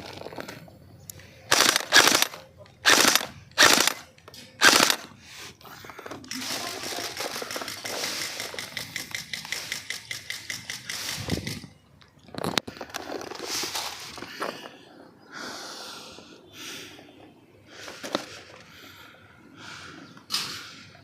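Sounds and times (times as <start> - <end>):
airsoft guns firing bursts: 1.5 - 5.2, 6.4 - 11.6.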